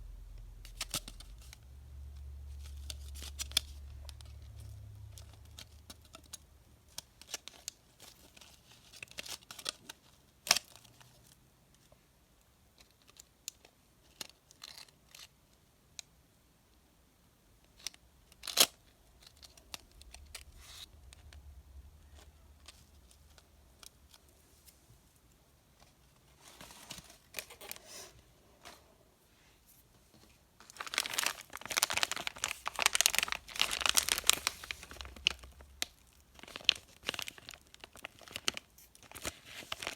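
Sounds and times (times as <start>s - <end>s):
candy wrappers crinkling: 17.8s - 24.7s, 30.6s - 39.9s.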